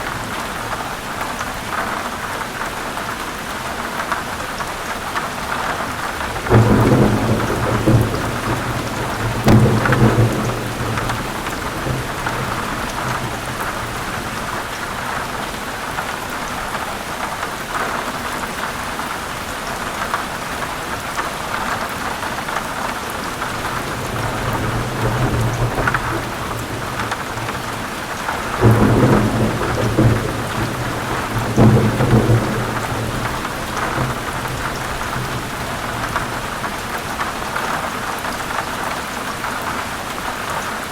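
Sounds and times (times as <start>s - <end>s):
heavy rain on leaves: 0.0s - 40.9s
thunder rumbling: 5.7s - 15.5s, 23.3s - 37.4s.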